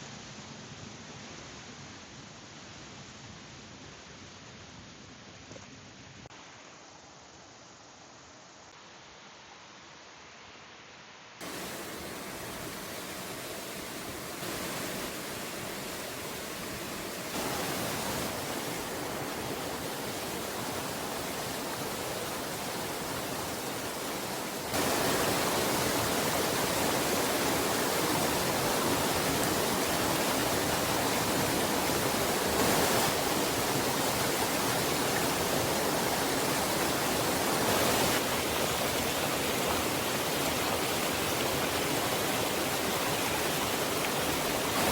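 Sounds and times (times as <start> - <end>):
heavy rain: 11.4 - 44.9
rushing stream: 11.4 - 44.9.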